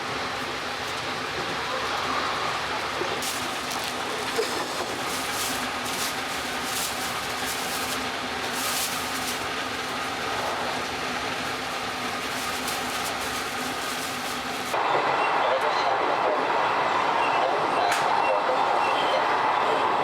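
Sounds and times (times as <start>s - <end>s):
train wheels rolling on rails: 0.0s - 14.8s.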